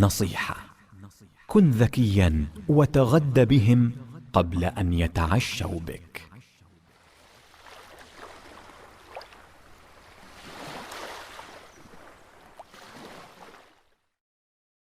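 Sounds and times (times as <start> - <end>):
rushing water: 6.9 - 14.0.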